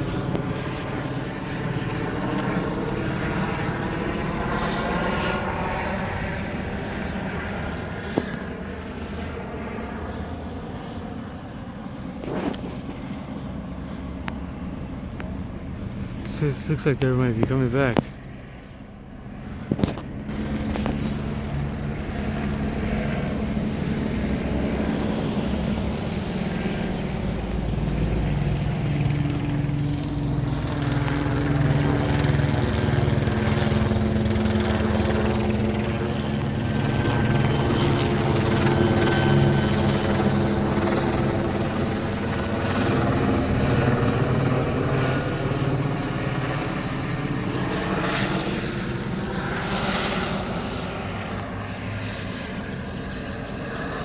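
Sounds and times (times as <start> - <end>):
helicopter flying over: 0.0 - 54.0.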